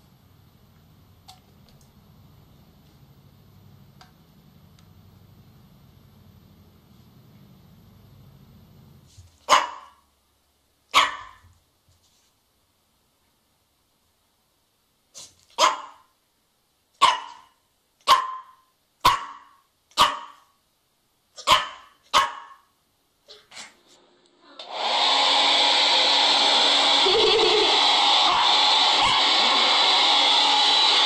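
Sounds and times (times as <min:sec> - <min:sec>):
dog barking: 0:09.4 - 0:10.0, 0:10.9 - 0:11.5, 0:15.6 - 0:16.1, 0:17.0 - 0:20.6, 0:21.4 - 0:22.7
hair dryer blowing: 0:24.6 - 0:31.0.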